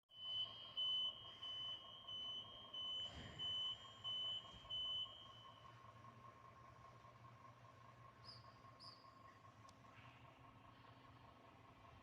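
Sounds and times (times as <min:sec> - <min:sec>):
high electronic alarm beeps: 0:00.1 - 0:05.6.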